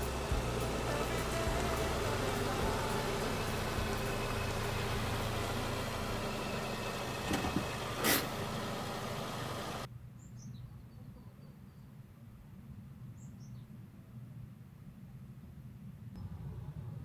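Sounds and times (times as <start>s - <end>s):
vehicle engine and road noise: 0.0s - 9.9s.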